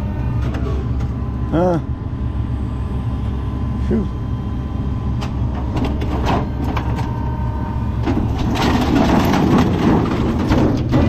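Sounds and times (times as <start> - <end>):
low engine hum: 0.0 - 11.0
crunching and clattering: 8.0 - 11.0.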